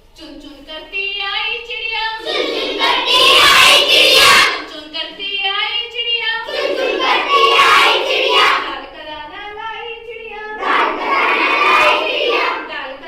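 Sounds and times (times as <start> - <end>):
children singing in unison: 2.1 - 4.7, 6.4 - 8.8, 10.5 - 12.8.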